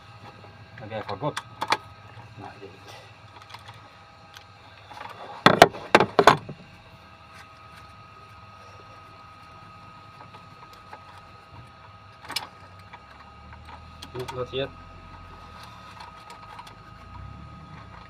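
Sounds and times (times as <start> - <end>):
knocks and clatter of tools: 5.0 - 6.6.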